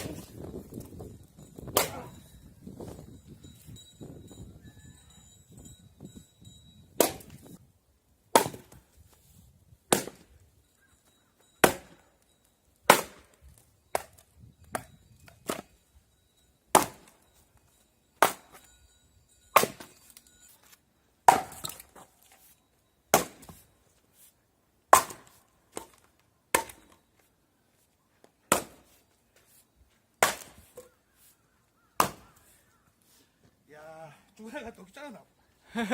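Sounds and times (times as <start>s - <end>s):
axe chopping firewood: 1.6s - 2.2s, 7.0s - 7.5s, 8.3s - 8.8s, 9.9s - 10.3s, 11.6s - 12.0s, 12.8s - 15.7s, 16.7s - 17.2s, 18.2s - 18.6s, 19.6s - 20.2s, 21.2s - 22.3s, 23.1s - 23.6s, 24.9s - 27.0s, 28.5s - 29.0s, 30.2s - 30.9s, 32.0s - 32.5s.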